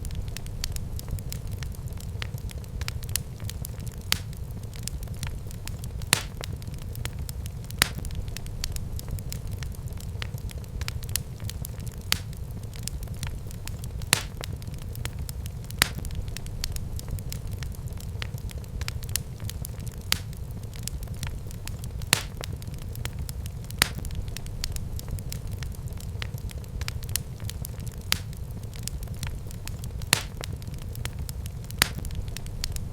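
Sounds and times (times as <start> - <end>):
fire crackling and popping: 0.0 - 32.9
fire rumbling in fireplace: 0.0 - 32.9.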